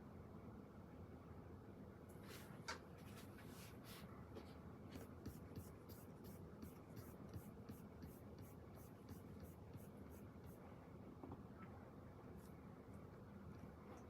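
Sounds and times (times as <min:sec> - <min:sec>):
pen writing on paper: 0:05.2 - 0:10.6.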